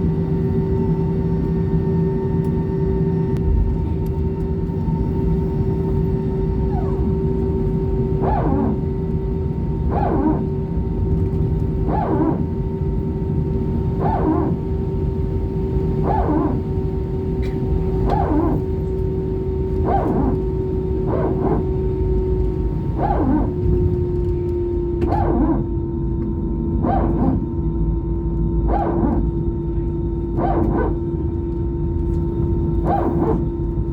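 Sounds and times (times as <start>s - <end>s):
aircraft cabin hum: 0.0s - 33.9s
hydraulic pump barking whine: 6.4s - 27.7s, 28.6s - 31.5s, 32.1s - 33.9s.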